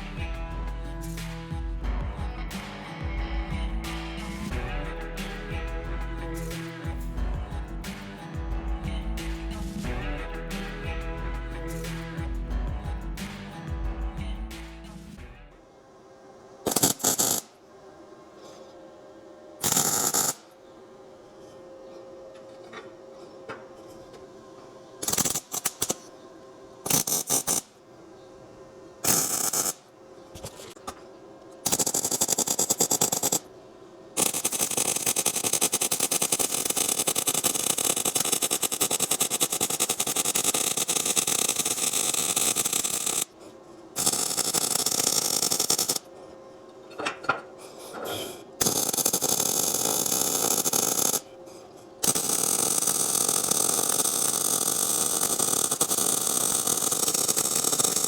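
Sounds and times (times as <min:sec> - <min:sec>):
welding arc crackling: 0:00.0 - 0:15.2, 0:16.6 - 0:17.6, 0:19.6 - 0:20.6, 0:25.0 - 0:26.1, 0:26.8 - 0:27.8, 0:29.0 - 0:30.9, 0:31.6 - 0:33.5, 0:34.2 - 0:43.4, 0:44.0 - 0:46.1, 0:48.6 - 0:51.3, 0:52.0 - 0:58.0.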